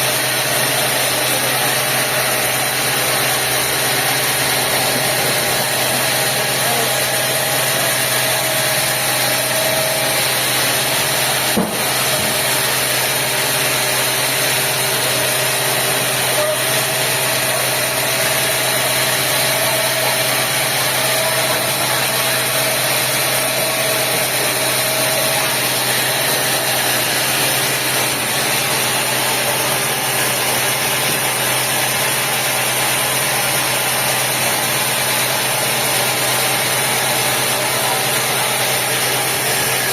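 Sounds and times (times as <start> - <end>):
sawmill machinery running: 0.0 - 39.9
brief knock: 11.6 - 11.9.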